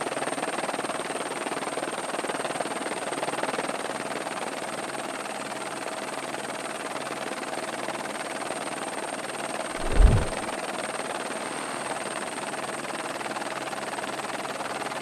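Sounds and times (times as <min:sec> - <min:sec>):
low thump: 0:09.8 - 0:10.5.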